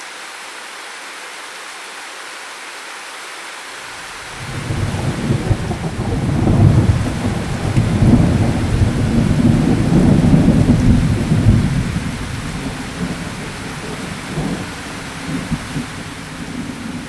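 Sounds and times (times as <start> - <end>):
steady rain: 0.0 - 17.0
low roll of thunder: 4.2 - 17.0.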